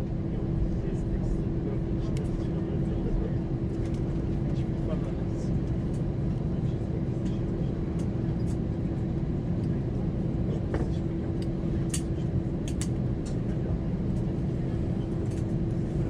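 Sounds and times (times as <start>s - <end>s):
aircraft cabin rumble and hum: 0.0s - 16.0s.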